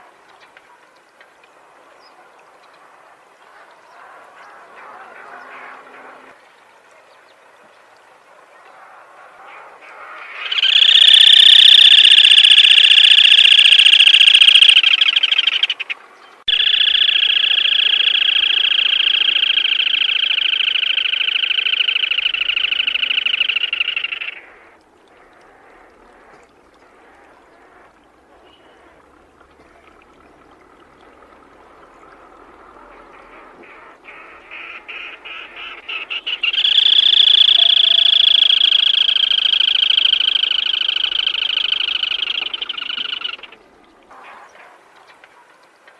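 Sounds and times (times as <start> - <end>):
bird rasping trills: 10.4 - 15.9, 16.5 - 24.4, 34.1 - 43.6.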